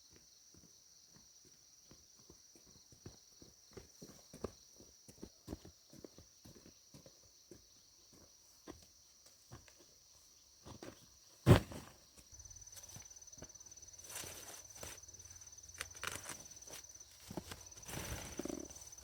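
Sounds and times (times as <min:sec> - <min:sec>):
soft footsteps on ground: 0:00.0 - 0:19.0.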